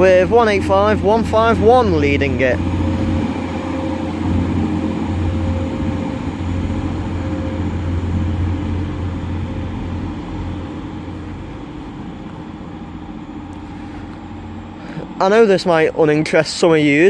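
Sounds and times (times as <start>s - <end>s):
diesel train engine droning: 0.0s - 17.0s.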